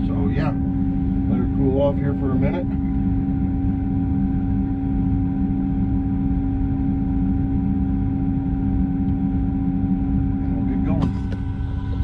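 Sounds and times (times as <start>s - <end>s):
diesel engine running steadily: 0.0s - 12.0s.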